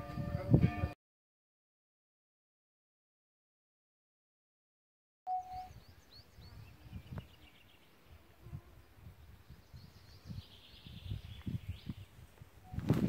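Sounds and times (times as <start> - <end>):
bird trill: 5.3 - 6.6
songbirds chirping: 5.3 - 13.0.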